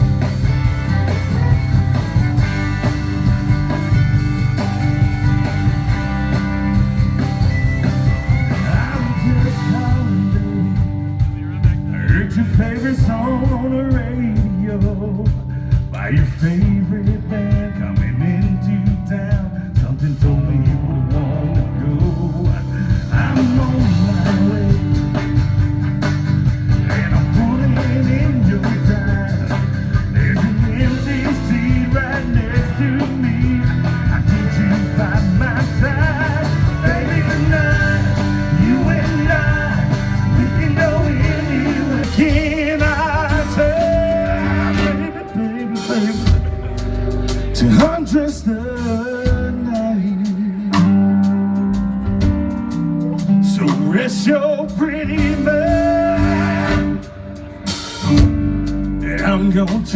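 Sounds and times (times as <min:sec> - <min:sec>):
live band playing blues-soul: 0:00.0 - 0:59.9.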